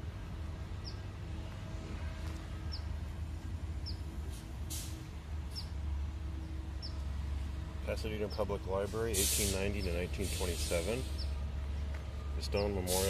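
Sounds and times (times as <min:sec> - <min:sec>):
brief hiss: 0:04.3 - 0:05.0, 0:09.1 - 0:11.3.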